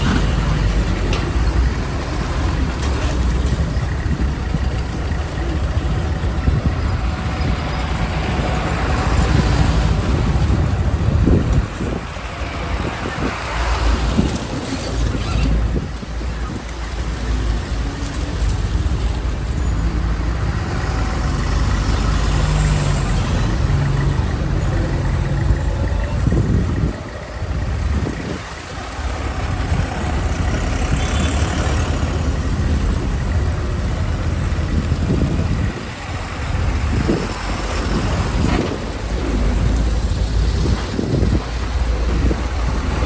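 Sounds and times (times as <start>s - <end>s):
heavy truck engines rumbling: 0.0s - 43.0s.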